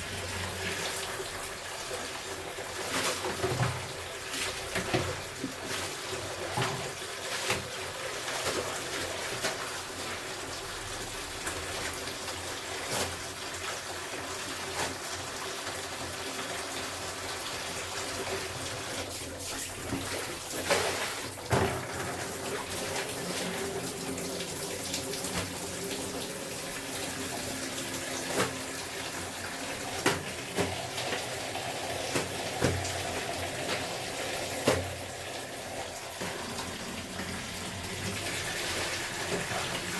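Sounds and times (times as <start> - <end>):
water running from a tap: 0.0 - 39.9.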